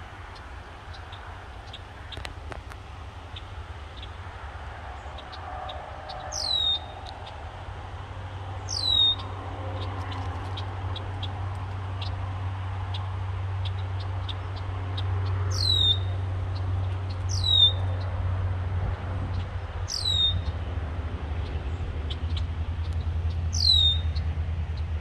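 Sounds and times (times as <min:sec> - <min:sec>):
steady low rumble: 0:00.0 - 0:25.0
high bird chip notes: 0:04.9 - 0:10.2
bird whistle call: 0:05.2 - 0:07.4, 0:08.7 - 0:09.3, 0:15.6 - 0:16.1, 0:17.3 - 0:17.8, 0:19.9 - 0:20.4, 0:23.5 - 0:24.1.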